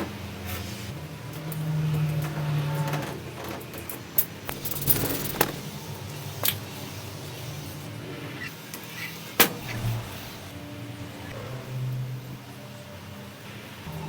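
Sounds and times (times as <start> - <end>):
metal tools clinking: 4.5 - 5.7.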